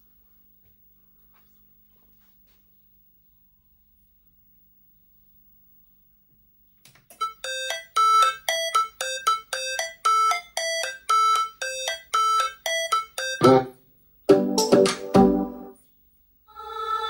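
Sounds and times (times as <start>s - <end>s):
chime-like electronic melody: 7.2s - 13.7s
electronic chord: 9.6s - 15.8s.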